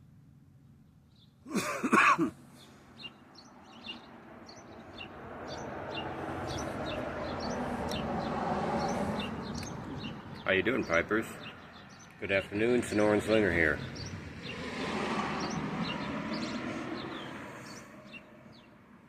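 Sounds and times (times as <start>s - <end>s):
small birds chirping: 0.6s - 1.7s, 2.4s - 19.0s
man clearing his throat: 1.5s - 2.4s.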